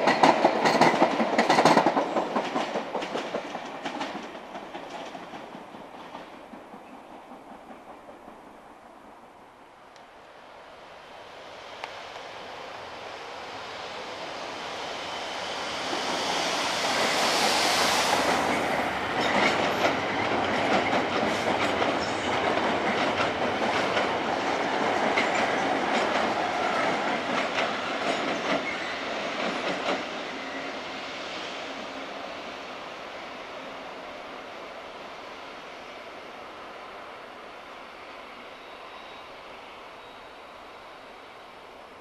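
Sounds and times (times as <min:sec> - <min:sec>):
wheels clicking over rail joints: 0:00.0 - 0:08.4
train rumble and hiss: 0:00.0 - 0:42.0.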